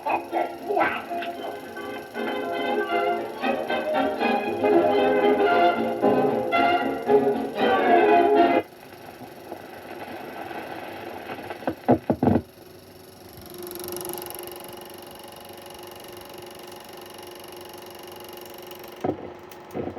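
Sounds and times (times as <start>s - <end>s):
film soundtrack hiss: 0.0s - 13.2s
steady hum: 0.0s - 19.9s.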